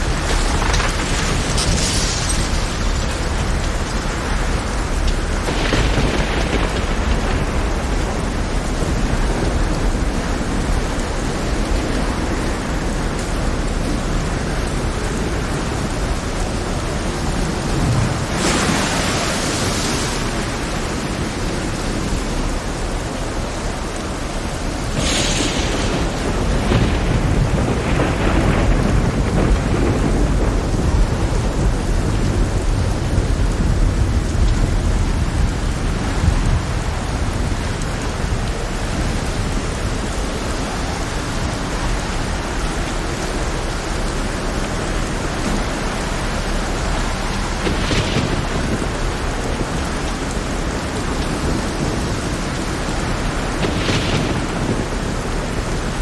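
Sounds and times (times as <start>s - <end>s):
sharp thunder cracks: 0.0s - 10.6s, 24.9s - 32.4s, 47.0s - 56.0s
deep thunder rumble: 0.0s - 23.0s, 24.4s - 56.0s
faint thunder crackles: 0.0s - 56.0s
heavy rain: 0.0s - 56.0s.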